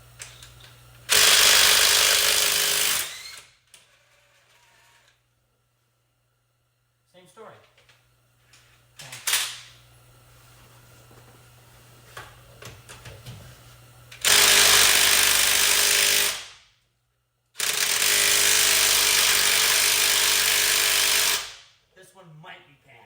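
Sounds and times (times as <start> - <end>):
handheld power tool running: 1.1 - 3.5, 14.2 - 16.5, 17.6 - 21.6.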